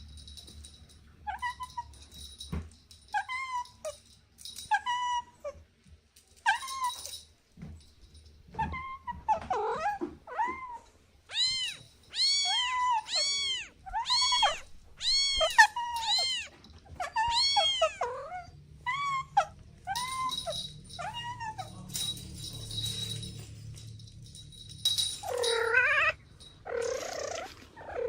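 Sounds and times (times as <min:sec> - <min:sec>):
kittens meowing: 0:08.5 - 0:21.9, 0:25.2 - 0:28.0.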